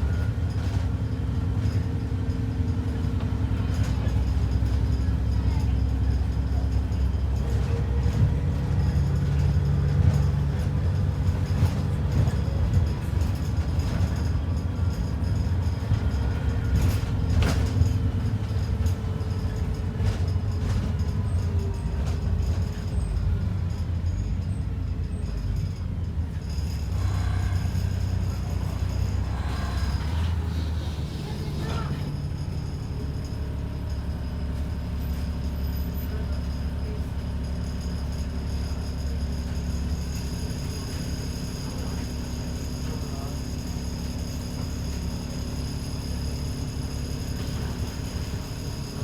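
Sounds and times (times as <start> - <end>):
bus engine and road rumble: 0.0 - 49.0
sharp rattle: 26.5 - 32.2.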